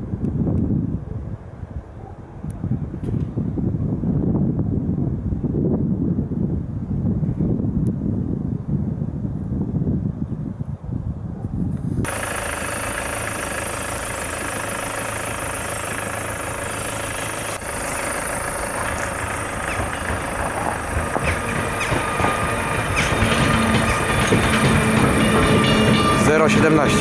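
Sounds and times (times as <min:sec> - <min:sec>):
electric locomotive rumble: 0:00.0 - 0:27.0
rail clicks: 0:12.1 - 0:27.0.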